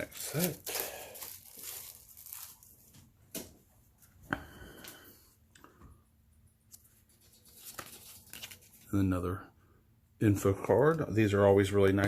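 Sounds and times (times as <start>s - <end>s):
plastic wrapping rustling: 0.0s - 3.2s, 7.3s - 8.9s.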